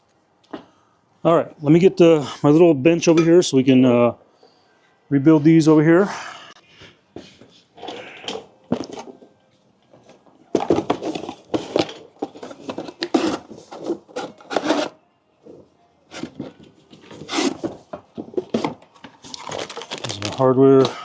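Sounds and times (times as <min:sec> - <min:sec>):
hard objects knocking and scraping: 0:10.5 - 0:15.0, 0:16.1 - 0:21.0.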